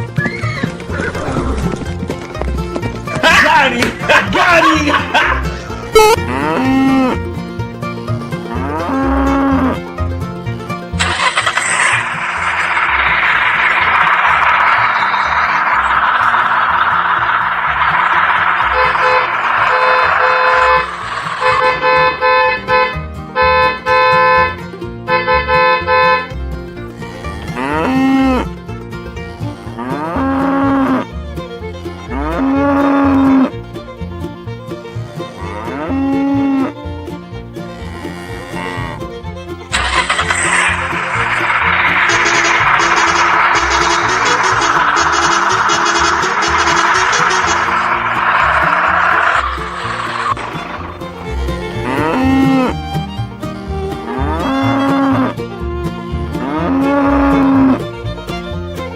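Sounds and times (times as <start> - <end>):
cow mooing: 8.5 - 9.8, 26.9 - 28.4, 29.3 - 31.0, 35.4 - 36.3, 37.7 - 39.0, 51.7 - 52.7.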